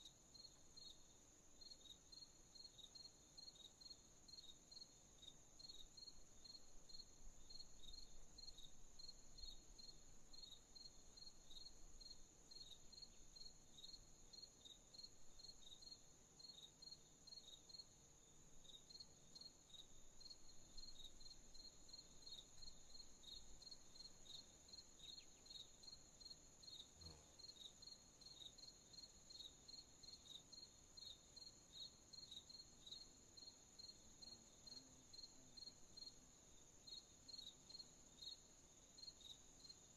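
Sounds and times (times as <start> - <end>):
crickets chirping: 0.0 - 39.9
insect trill: 0.0 - 39.9.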